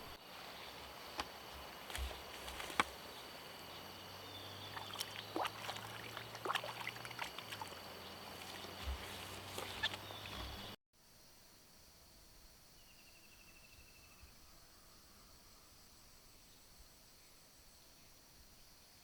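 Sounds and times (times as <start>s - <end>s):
high insect drone: 0.0s - 10.8s.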